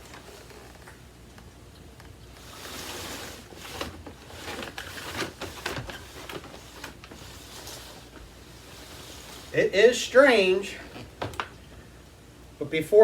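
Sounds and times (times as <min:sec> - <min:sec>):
plastic parts rustling: 0:02.4 - 0:11.6.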